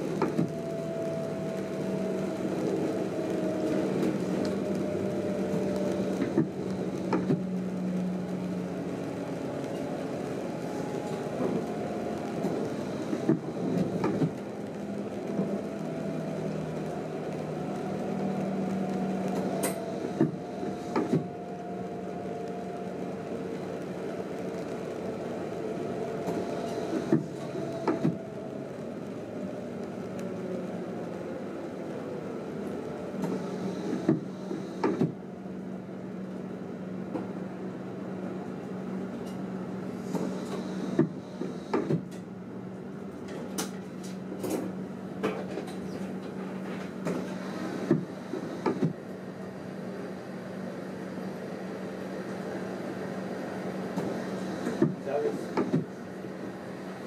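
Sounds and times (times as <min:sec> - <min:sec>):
train cab hum with whine: 0:00.0 - 0:57.0.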